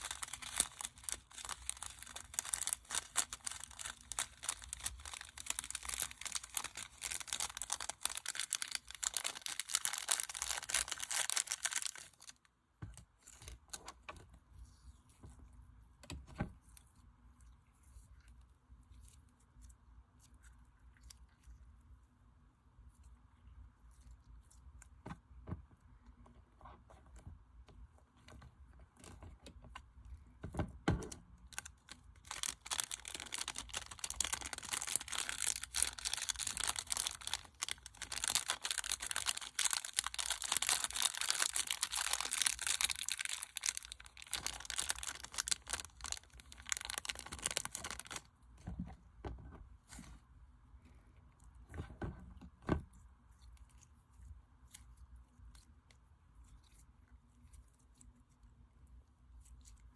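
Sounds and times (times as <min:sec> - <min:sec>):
slime crackling and popping: 0:00.0 - 0:12.4, 0:31.4 - 0:48.3.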